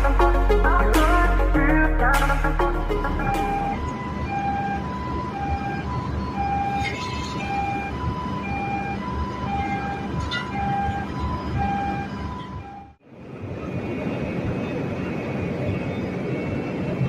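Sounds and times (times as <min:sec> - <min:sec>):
two-tone warning alarm: 0:03.0 - 0:13.0.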